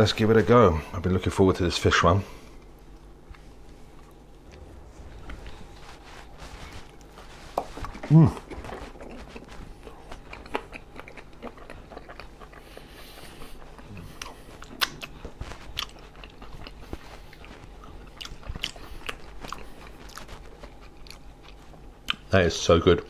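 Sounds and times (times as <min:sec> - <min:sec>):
person chewing food: 0:02.4 - 0:22.3.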